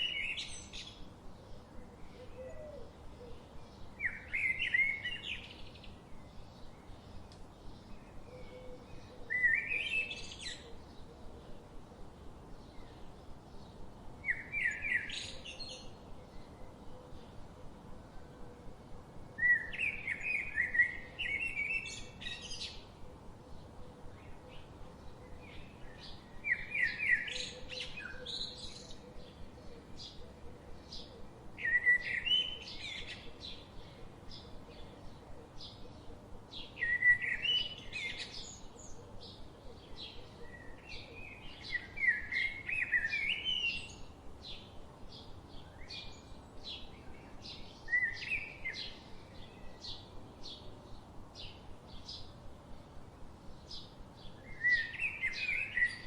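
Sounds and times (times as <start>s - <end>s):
bird warbling song: 12.5s - 17.4s, 19.4s - 52.4s, 53.6s - 56.0s.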